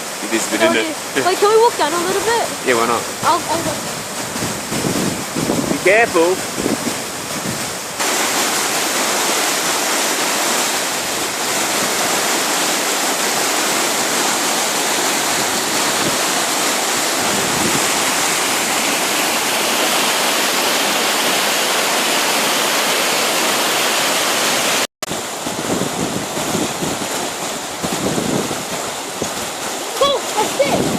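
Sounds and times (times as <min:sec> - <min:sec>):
rushing floodwater: 0:00.0 - 0:30.9.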